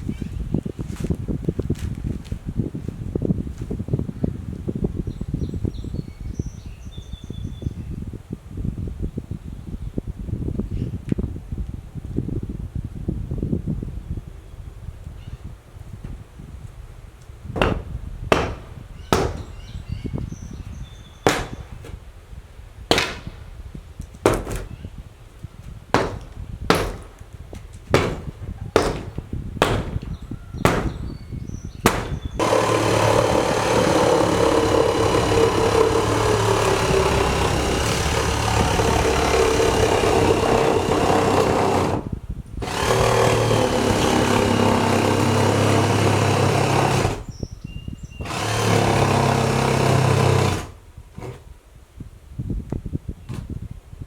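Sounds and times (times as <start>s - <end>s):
power tool running: 17.6s - 19.6s, 21.2s - 22.0s, 22.9s - 23.4s, 26.0s - 27.2s, 27.9s - 31.0s, 31.9s - 42.0s, 42.6s - 47.3s, 48.2s - 51.4s
hammer blows on wood: 17.6s - 20.2s, 21.2s - 22.0s, 22.9s - 23.5s, 24.3s - 24.8s, 26.0s - 47.3s.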